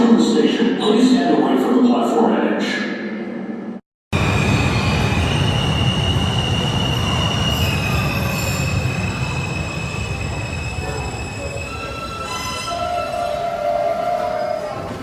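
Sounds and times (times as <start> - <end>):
train wheels rumbling on track: 4.2 - 15.0
wheel and brake squeal: 5.3 - 14.8.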